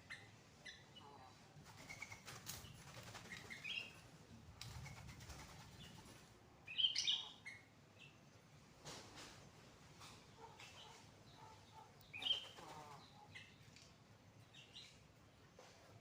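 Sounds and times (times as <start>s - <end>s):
birds chirping: 6.6s - 8.6s, 10.0s - 16.0s.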